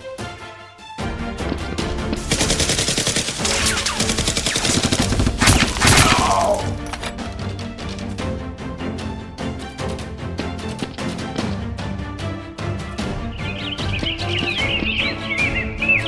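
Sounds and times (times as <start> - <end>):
action music: 0.0 - 16.0
loud blasts: 2.2 - 6.8
rapid automatic gunfire: 2.3 - 6.6.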